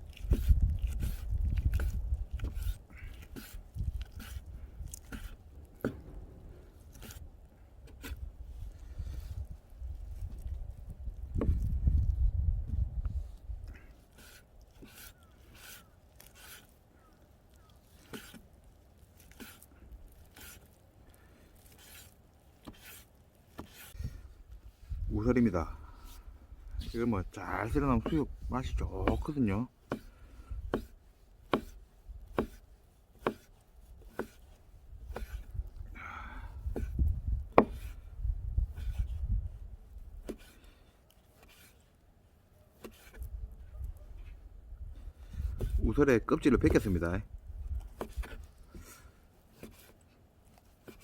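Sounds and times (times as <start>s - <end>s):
short scraping strokes with knock: 0.1s - 8.2s, 14.1s - 16.8s, 17.9s - 18.5s, 21.6s - 25.0s, 25.9s - 35.5s, 36.8s - 38.1s, 38.7s - 39.4s, 40.2s - 41.9s, 42.7s - 44.4s, 45.0s - 45.9s, 47.8s - 51.0s.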